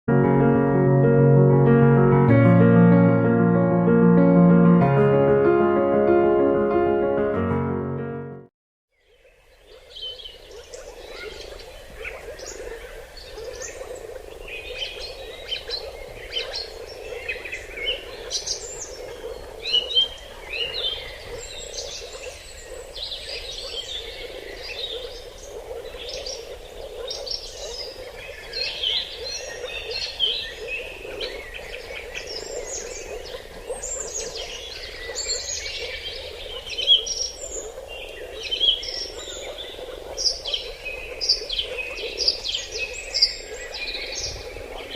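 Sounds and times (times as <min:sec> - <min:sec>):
birds chirping and trilling: 0:09.0 - 0:44.9
low bird chorus: 0:09.0 - 0:44.9.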